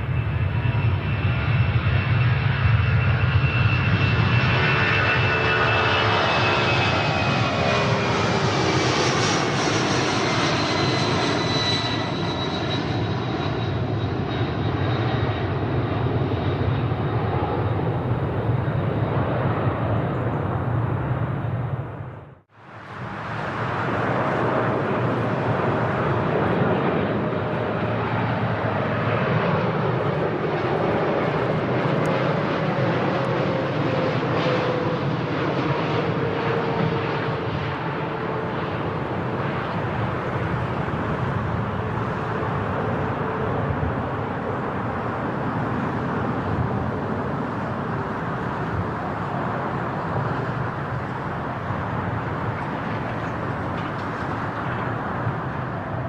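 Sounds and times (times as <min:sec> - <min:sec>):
military aircraft engine roar: 0:00.0 - 0:56.0.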